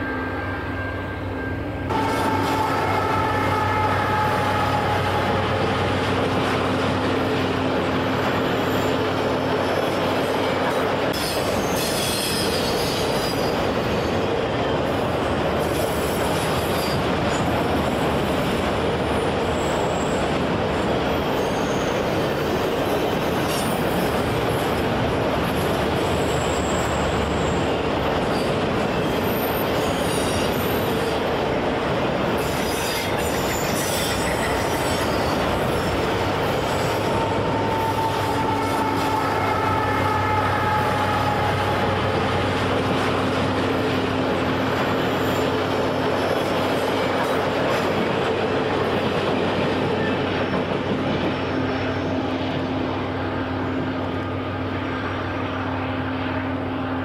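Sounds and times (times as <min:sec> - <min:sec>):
freight train rumbling past: 0:00.0 - 0:57.0
high wheel squeals: 0:11.1 - 0:14.2, 0:21.2 - 0:22.6, 0:26.0 - 0:31.2.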